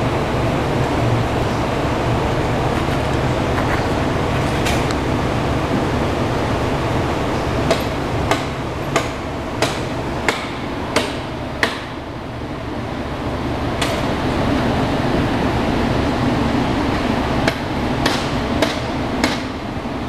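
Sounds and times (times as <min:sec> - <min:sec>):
low rumbling noise: 0:00.0 - 0:20.0
sharp knocks: 0:07.7 - 0:12.0, 0:17.4 - 0:19.5.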